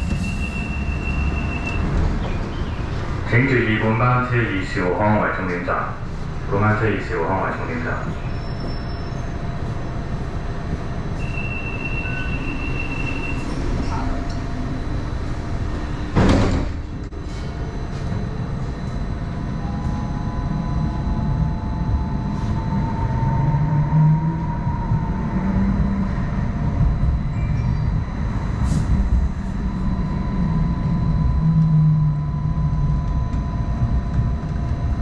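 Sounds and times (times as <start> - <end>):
train wheels rumbling: 0.0 - 35.0
steady rising whine: 16.9 - 35.0.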